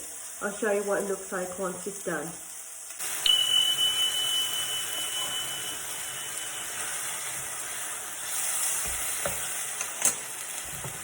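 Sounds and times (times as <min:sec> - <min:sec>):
food sizzling in a pan: 0:00.0 - 0:11.0
thin high tone: 0:03.0 - 0:08.2.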